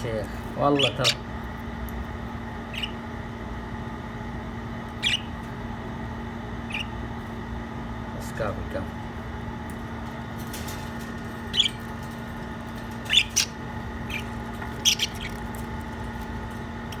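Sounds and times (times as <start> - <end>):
steady low hum: 0.0 - 17.0
lovebirds chirping: 0.7 - 1.3, 2.6 - 3.0, 4.9 - 5.4, 6.6 - 7.0, 11.4 - 12.2, 12.9 - 16.2.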